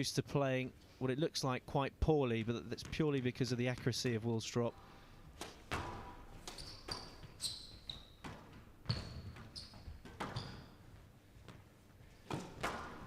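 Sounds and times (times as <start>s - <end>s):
squash ball hitting rackets and walls: 5.3s - 13.0s
shoes squeaking on wooden floor: 5.4s - 13.0s.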